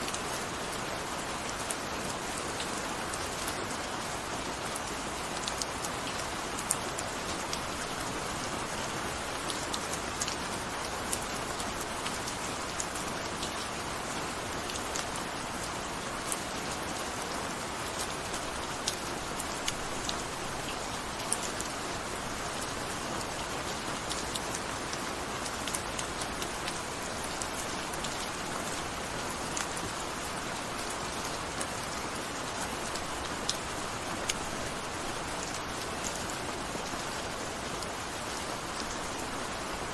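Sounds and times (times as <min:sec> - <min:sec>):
gentle rain hiss: 0:00.0 - 0:39.9.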